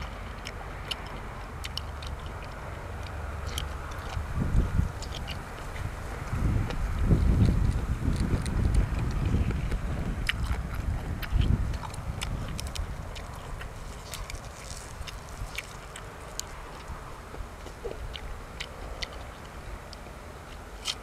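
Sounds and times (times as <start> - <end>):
low rumble: 0.0 - 18.2
chewing: 0.0 - 21.0
wet mouth clicks and smacks: 0.4 - 5.9, 6.6 - 17.0.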